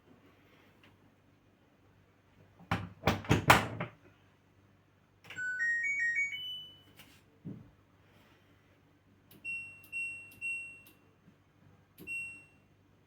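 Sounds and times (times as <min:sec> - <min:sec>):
thuds and knocks on washing machine: 0:02.6 - 0:04.0
rising electronic power-on beeps: 0:05.4 - 0:06.9.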